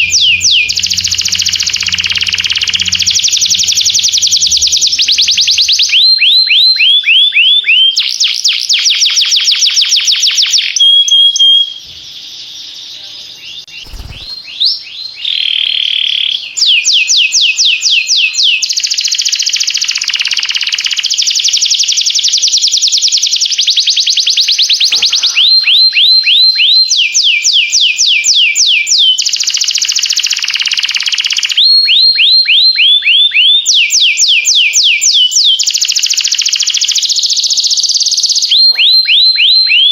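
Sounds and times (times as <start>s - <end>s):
canary singing: 0.0s - 8.7s, 10.5s - 21.2s, 23.4s - 29.4s.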